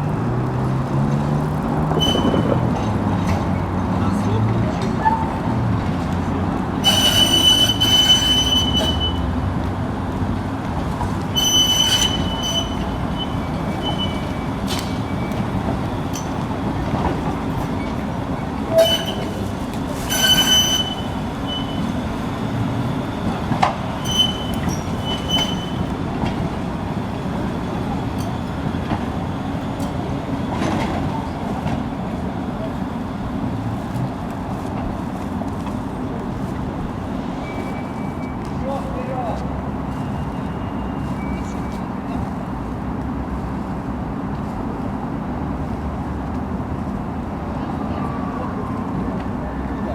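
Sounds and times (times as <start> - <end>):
tram rumbling on rails: 0.0 - 49.9
tram wheels squealing: 1.9 - 3.8, 4.9 - 5.6, 6.7 - 33.6, 35.2 - 42.4.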